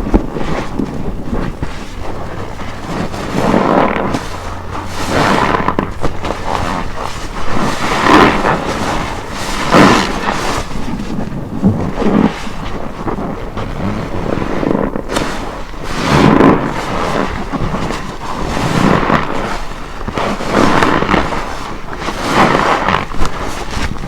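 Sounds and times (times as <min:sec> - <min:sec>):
wet sponge squelching: 0:00.0 - 0:24.0.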